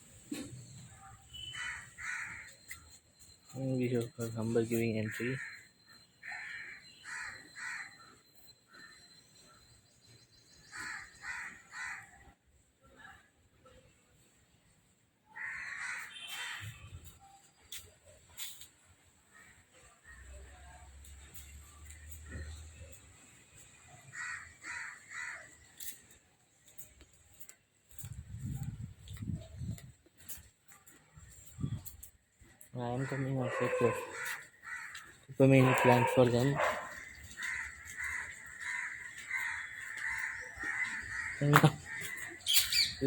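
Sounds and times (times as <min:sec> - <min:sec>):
crow cawing: 0:01.3 - 0:02.8, 0:05.0 - 0:08.1, 0:10.7 - 0:12.2, 0:15.3 - 0:16.8, 0:24.1 - 0:26.0, 0:33.0 - 0:42.9.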